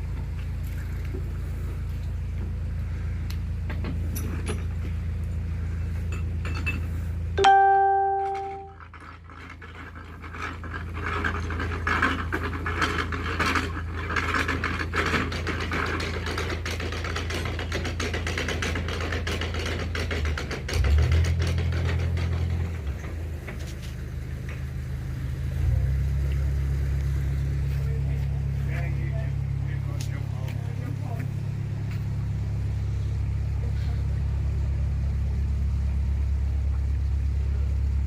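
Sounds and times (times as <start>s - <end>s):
diesel engine humming: 0.0s - 38.0s.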